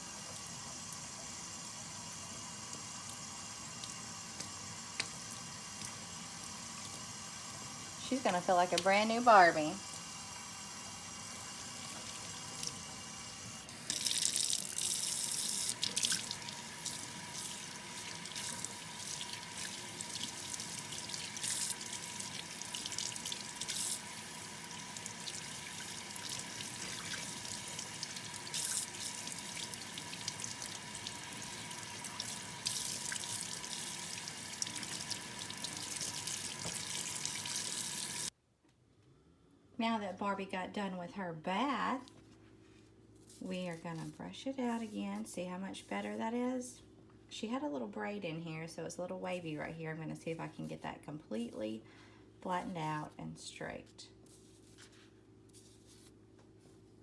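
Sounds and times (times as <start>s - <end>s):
tap water running into sink: 13.7s - 38.3s.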